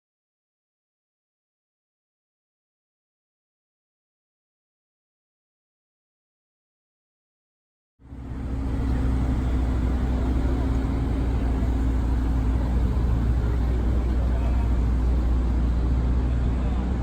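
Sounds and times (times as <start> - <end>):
road noise: 8.0 - 17.0
vehicle engine humming: 8.0 - 17.0.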